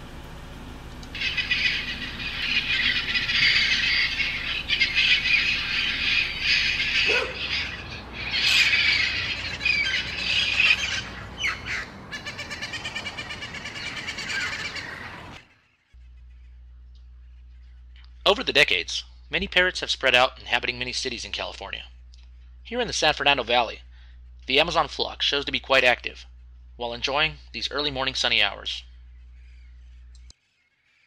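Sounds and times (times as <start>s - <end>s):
parrots squawking: 1.1s - 15.6s.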